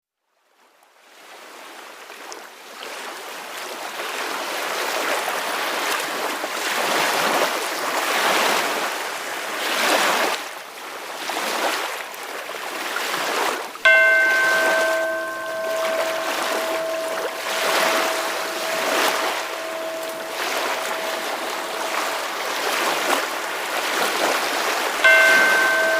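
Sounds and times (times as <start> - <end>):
ocean waves washing in: 13.9 - 25.9
ringing tone with several pitches: 13.9 - 25.9.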